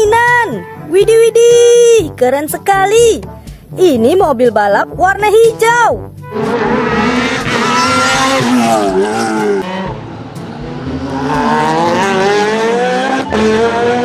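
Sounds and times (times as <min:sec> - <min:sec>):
race car engine revving: 0:06.2 - 0:14.0.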